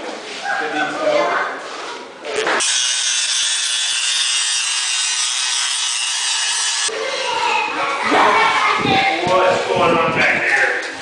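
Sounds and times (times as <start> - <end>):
power tool rasping hiss: 2.6 - 6.9.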